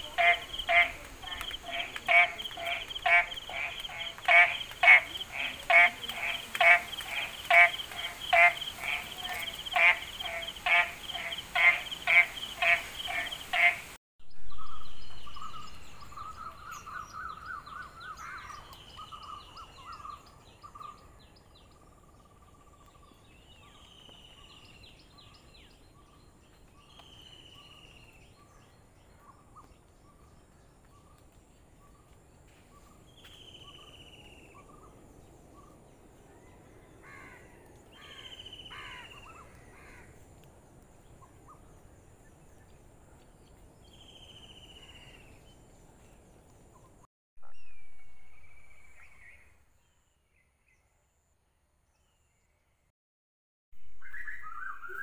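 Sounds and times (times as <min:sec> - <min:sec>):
rapid repeated bird notes: 0:00.0 - 0:14.0.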